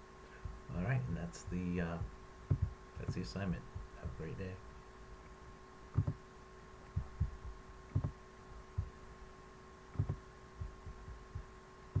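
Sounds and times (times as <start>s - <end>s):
steady electrical hum: 0.0s - 12.0s
soft low thumps: 0.4s - 0.7s, 1.5s - 4.3s, 5.9s - 6.2s, 6.8s - 9.0s, 9.9s - 12.0s.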